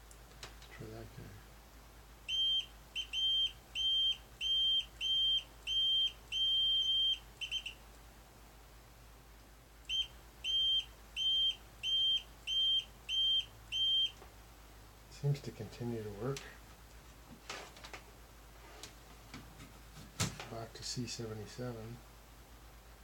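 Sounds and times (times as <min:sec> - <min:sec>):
multimeter beeping: 0:02.3 - 0:07.8, 0:09.9 - 0:14.2.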